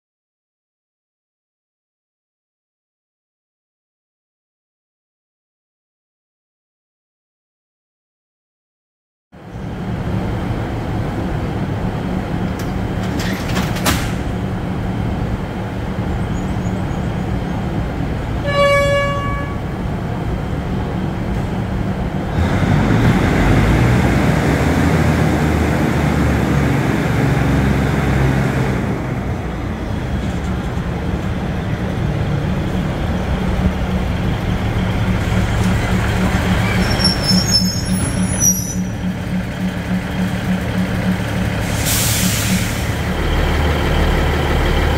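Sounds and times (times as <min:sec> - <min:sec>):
diesel train engine running: 0:09.4 - 0:44.9
train horn toot: 0:18.4 - 0:19.8
high squeaks: 0:35.6 - 0:39.1
compressed air rushing from brake: 0:41.6 - 0:43.0.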